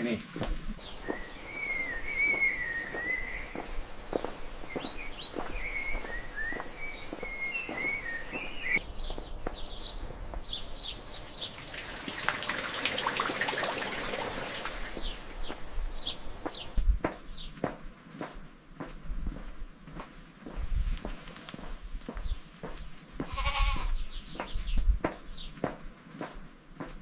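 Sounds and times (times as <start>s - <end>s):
soft hiss: 0.8s - 12.8s, 13.9s - 16.8s
birds chirping: 0.8s - 16.8s.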